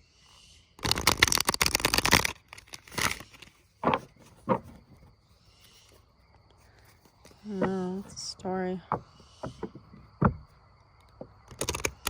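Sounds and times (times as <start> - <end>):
cards being shuffled: 0.8 - 4.9.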